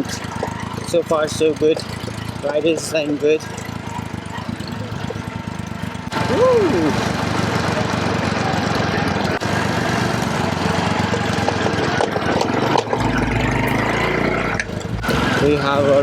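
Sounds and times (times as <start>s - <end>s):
motorcycle engine putter: 0.0s - 16.0s
wind and road noise: 0.0s - 16.0s.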